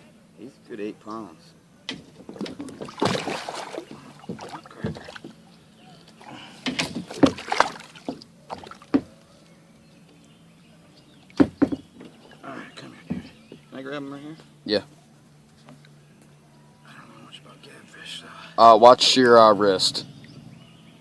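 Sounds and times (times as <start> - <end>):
sharp knocks on kayak: 1.9 - 5.4, 6.6 - 9.2, 11.4 - 12.2, 13.1 - 13.4
water splashing around kayak: 2.0 - 5.4, 6.1 - 9.2.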